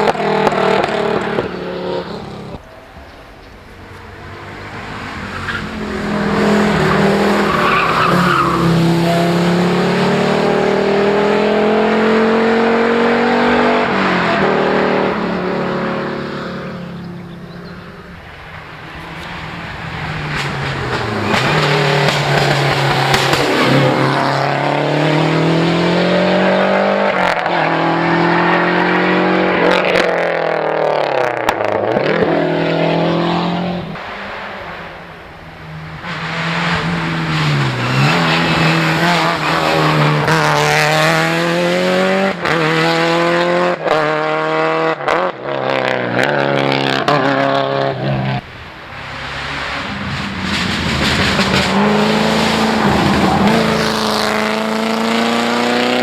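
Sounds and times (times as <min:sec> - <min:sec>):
rally car engines accelerating: 0:00.0 - 0:02.6, 0:04.2 - 0:56.0.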